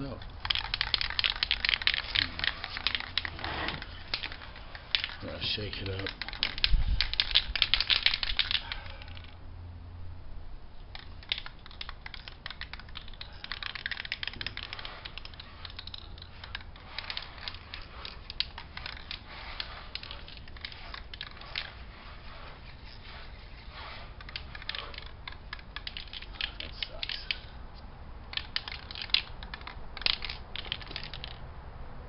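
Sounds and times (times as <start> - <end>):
spray paint can rattling: 0.0 - 9.3, 10.9 - 27.6, 28.2 - 31.4.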